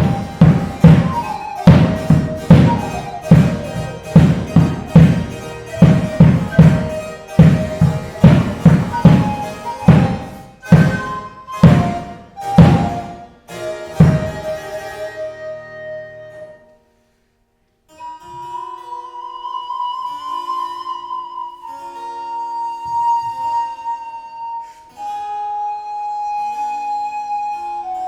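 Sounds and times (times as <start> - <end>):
loud struck chords: 0.0 - 13.2
harpsichord: 0.0 - 15.2
recorder long notes: 0.0 - 16.8.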